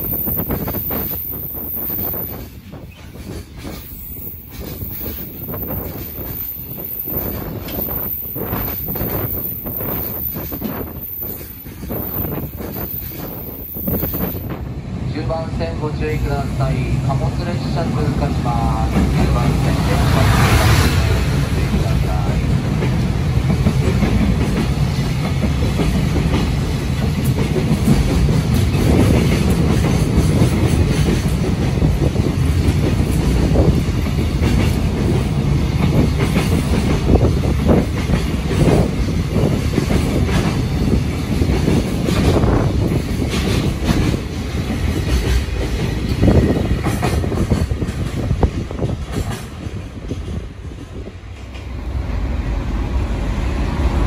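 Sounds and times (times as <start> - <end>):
train wheels rumbling on rail: 0.0 - 54.0
clacks over rail joints: 2.3 - 14.7, 21.6 - 51.8.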